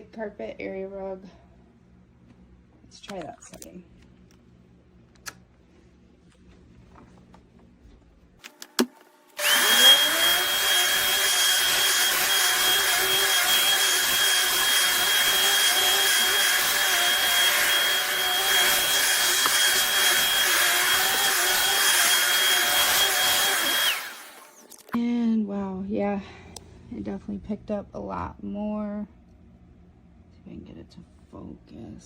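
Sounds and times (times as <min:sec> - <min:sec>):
vacuum cleaner motor whining: 0:09.3 - 0:24.8.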